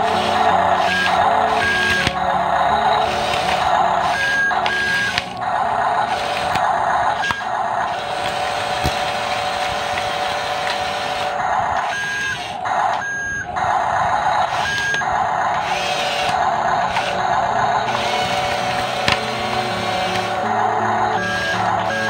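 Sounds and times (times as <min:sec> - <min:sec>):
buzzy toy engine sound effect: 0:00.0 - 0:22.0
short beeps: 0:13.0 - 0:13.5.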